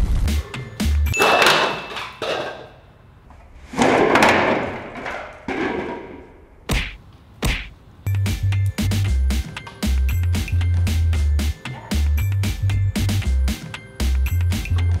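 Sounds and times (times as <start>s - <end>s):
music with thumping bass beat: 6.7s - 15.0s.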